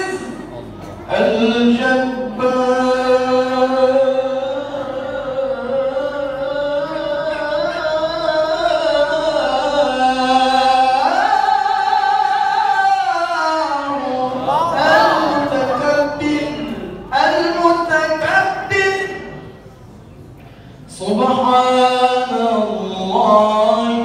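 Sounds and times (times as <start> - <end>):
man reciting melodically: 0.0 - 19.7, 20.6 - 24.0.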